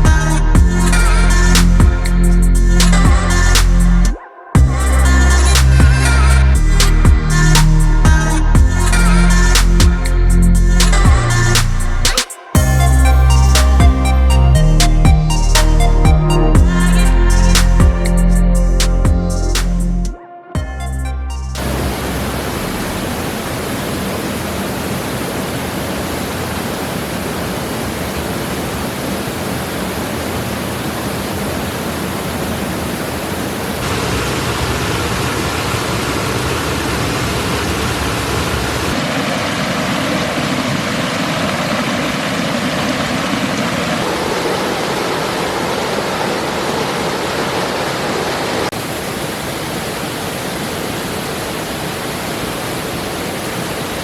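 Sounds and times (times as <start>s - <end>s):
creek rushing over rocks: 21.6s - 54.0s.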